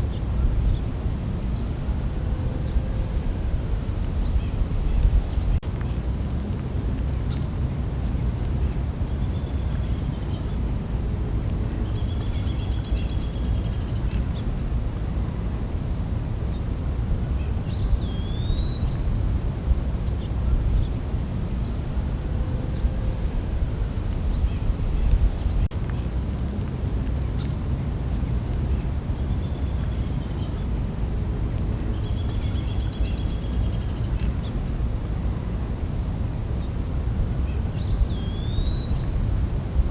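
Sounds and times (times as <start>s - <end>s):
crickets chirping: 0.0s - 39.9s
steady low rumble: 14.5s - 26.6s
high-pitched insect trill: 29.1s - 39.9s.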